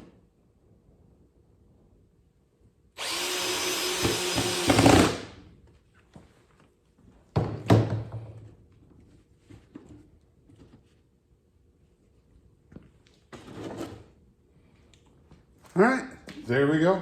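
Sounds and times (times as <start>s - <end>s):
power drill driving screw into wood: 3.0s - 5.4s.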